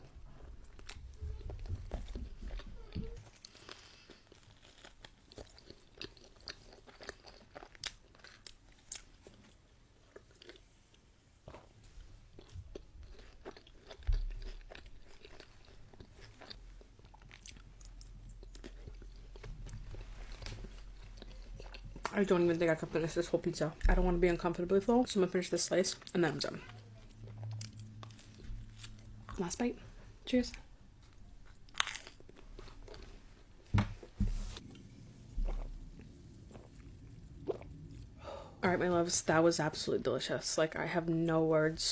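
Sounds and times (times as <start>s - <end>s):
chewing and crunching pizza: 0.0s - 38.2s
crunchy pizza bites: 3.2s - 9.4s, 31.0s - 37.8s
dull low thump: 33.7s - 34.5s.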